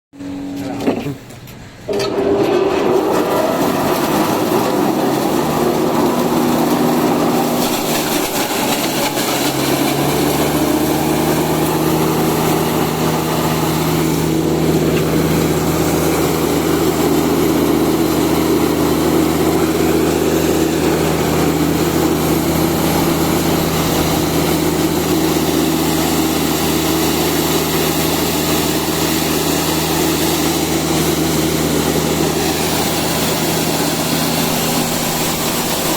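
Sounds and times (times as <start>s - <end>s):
grinder machine running: 0.2s - 35.9s.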